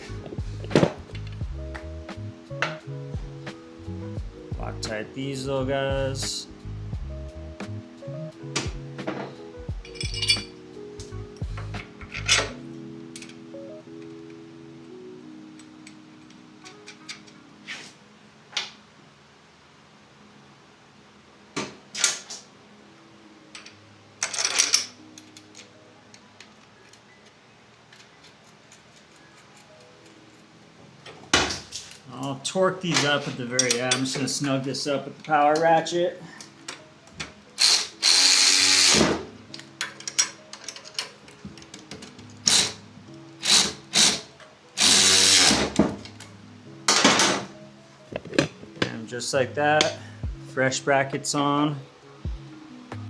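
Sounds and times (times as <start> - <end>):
quiet background music: 0.0 - 53.0
metal hardware rattling clatter: 9.8 - 10.6, 32.9 - 34.4, 39.8 - 42.6
metal tools clinking: 9.8 - 10.6, 11.8 - 13.4, 23.6 - 25.7, 31.7 - 34.6, 39.5 - 42.8
power ratchet running: 37.6 - 39.2, 42.5 - 42.8, 43.4 - 45.8.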